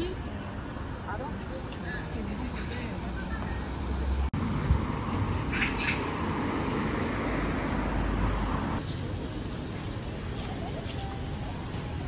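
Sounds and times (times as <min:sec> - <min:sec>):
traffic hum: 0:00.0 - 0:12.0
bird squawking harshly: 0:05.5 - 0:06.1.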